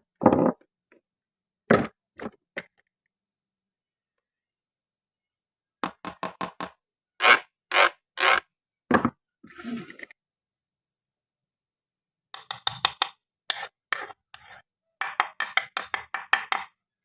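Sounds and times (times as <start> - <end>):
toy knife chopping on board: 12.4 - 13.6, 15.0 - 16.7
scraping rasp: 13.5 - 14.7.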